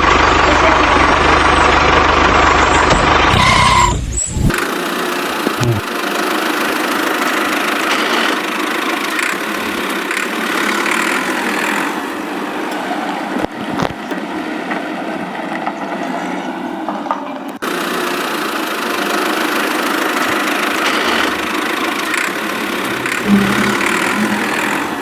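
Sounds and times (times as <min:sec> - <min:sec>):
small motor whirring: 0:04.2 - 0:12.4, 0:17.6 - 0:25.0.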